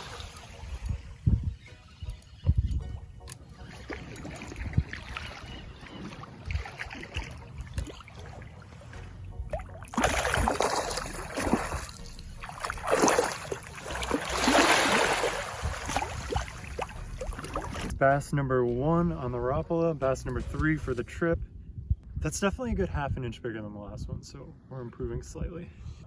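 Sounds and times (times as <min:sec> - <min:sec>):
shallow water splashing: 0:00.0 - 0:01.2, 0:02.9 - 0:18.0.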